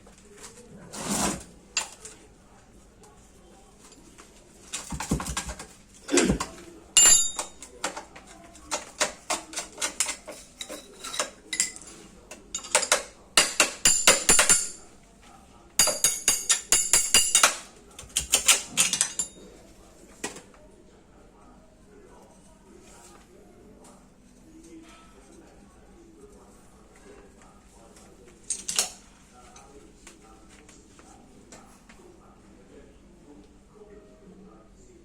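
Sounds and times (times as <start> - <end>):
metal tools clinking and knocking: 6.4 - 14.8, 15.8 - 19.5, 28.5 - 29.0.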